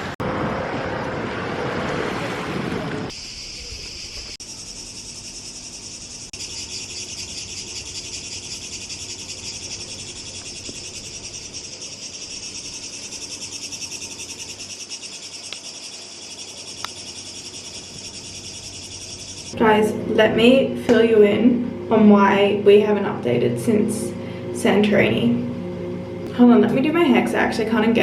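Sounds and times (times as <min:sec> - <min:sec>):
insects chirring: 0:03.1 - 0:19.6.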